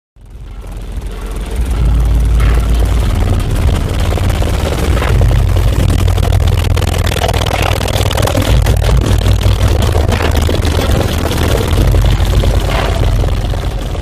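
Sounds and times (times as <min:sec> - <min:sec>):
gritty buzz: 0:00.2 - 0:14.0
loud deep bass from subwoofers: 0:00.2 - 0:14.0.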